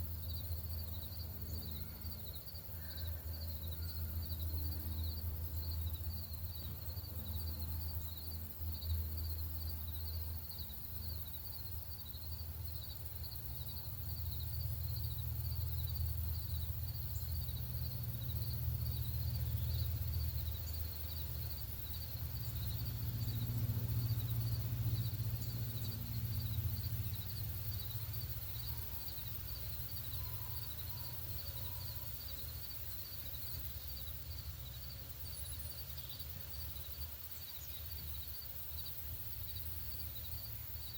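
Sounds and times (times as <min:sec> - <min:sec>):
high pulsing insect call: 0:00.0 - 0:40.9
faint chirps: 0:01.4 - 0:09.0, 0:21.9 - 0:40.9.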